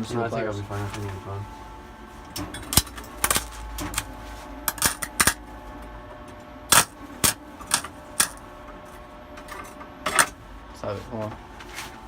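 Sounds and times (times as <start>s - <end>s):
steady electrical hum: 0.0s - 12.0s
welder arc crackling: 2.7s - 5.4s, 6.7s - 8.4s.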